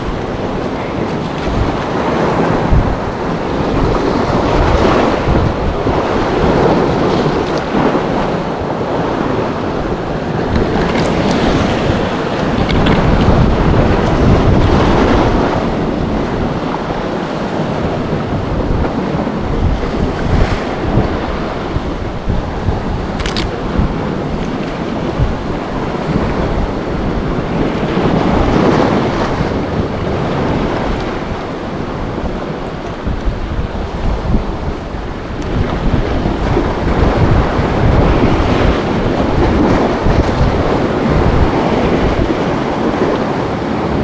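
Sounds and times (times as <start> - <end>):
sea water and small waves: 0.0 - 44.0
wind buffeting microphone: 0.0 - 44.0.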